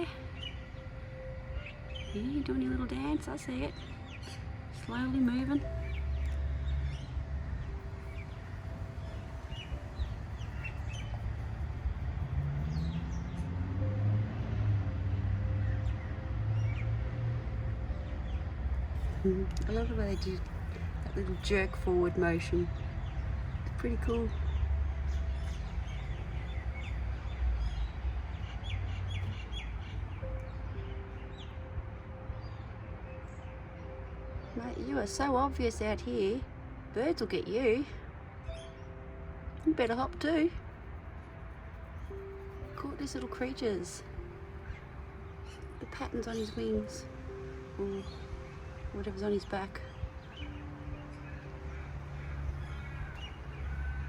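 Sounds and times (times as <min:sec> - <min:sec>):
small birds chirping: 0:00.0 - 0:13.7, 0:18.0 - 0:31.7, 0:38.4 - 0:54.0
steady low rumble: 0:00.0 - 0:33.7.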